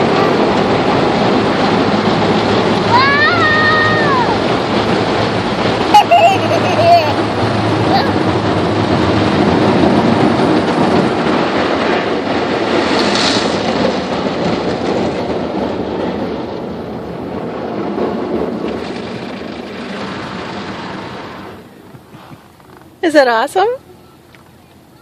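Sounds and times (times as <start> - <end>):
car wash water spray and scrubbing: 4.3 - 15.5, 17.4 - 23.0.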